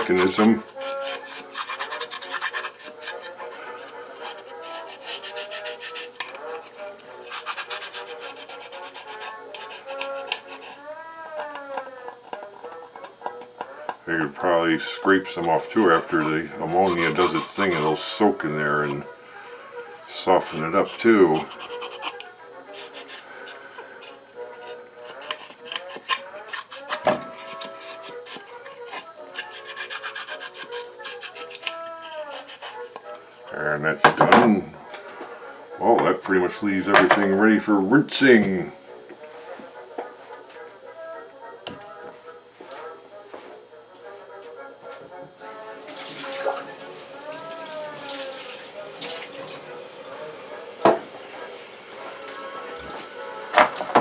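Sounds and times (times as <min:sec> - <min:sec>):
scrubbing and scraping on wood: 0:00.0 - 0:06.2, 0:07.2 - 0:10.8, 0:15.7 - 0:19.1, 0:20.3 - 0:23.3, 0:24.0 - 0:32.9
faint background music: 0:00.0 - 0:54.0.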